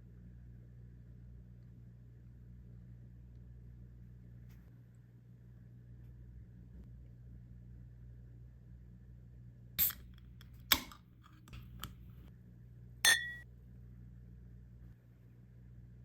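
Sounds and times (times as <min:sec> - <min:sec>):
ringing clink: 0:13.1 - 0:13.4.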